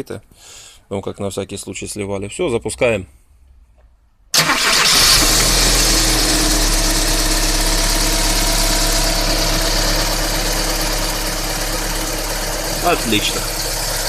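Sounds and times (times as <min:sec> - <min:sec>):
car engine idling: 0:04.4 - 0:14.0.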